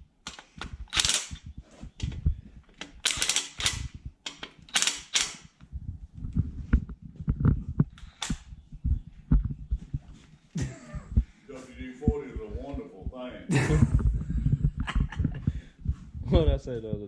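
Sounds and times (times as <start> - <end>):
metallic clicks and knocks: 0.2 - 5.6.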